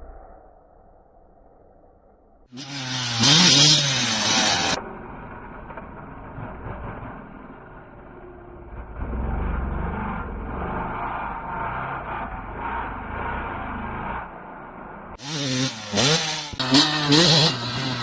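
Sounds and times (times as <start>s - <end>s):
dirt bike engine revving: 2.6s - 5.2s, 6.6s - 18.0s.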